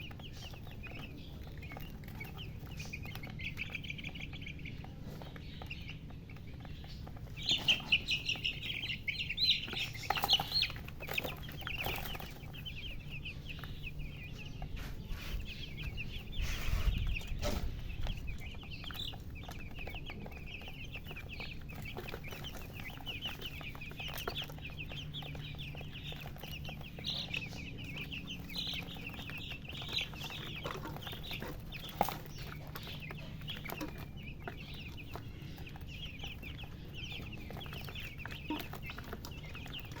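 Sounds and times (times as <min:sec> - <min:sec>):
baby chicks chirping: 0:00.0 - 0:40.0.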